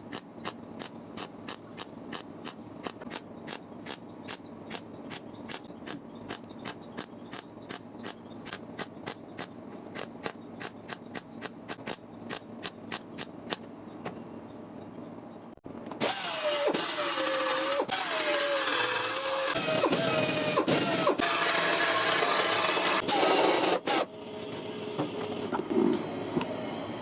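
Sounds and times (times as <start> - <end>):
power grinder cutting metal: 16.0 - 24.0.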